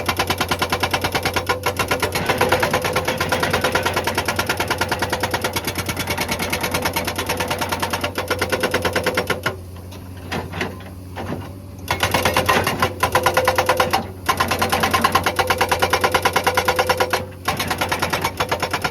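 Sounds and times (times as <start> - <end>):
excavator engine hum: 0.0 - 18.9
hydraulic breaker hammering rock: 0.0 - 18.9.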